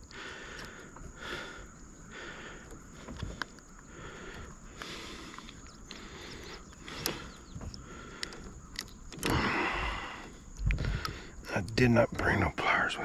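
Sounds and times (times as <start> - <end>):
handling clicks and rustles: 2.4 - 12.6.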